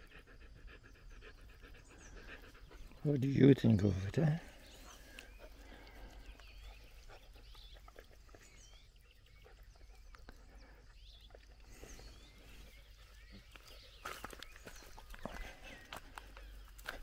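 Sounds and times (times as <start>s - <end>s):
distant birdsong: 0.0s - 17.0s.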